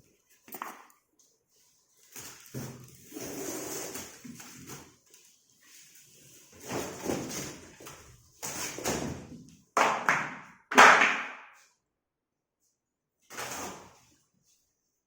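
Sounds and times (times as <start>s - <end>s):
scraping and rustling packing: 1.5s - 9.2s.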